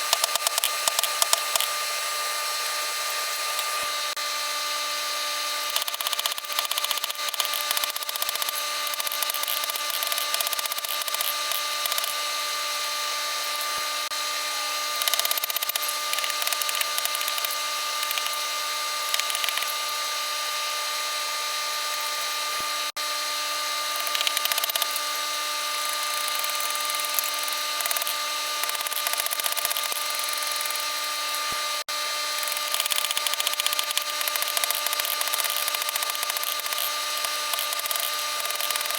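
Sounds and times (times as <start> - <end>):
electric grinder motor hum: 0.0 - 38.9.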